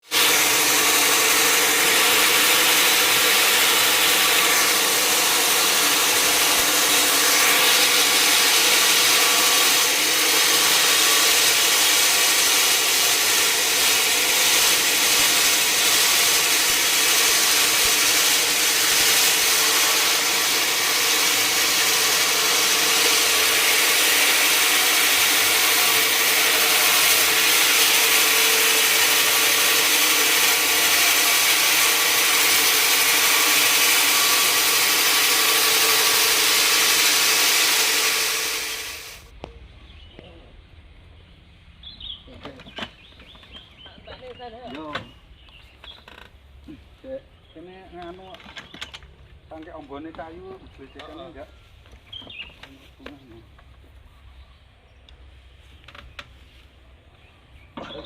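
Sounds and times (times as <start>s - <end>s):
saw blade cutting through log: 0.0s - 39.3s.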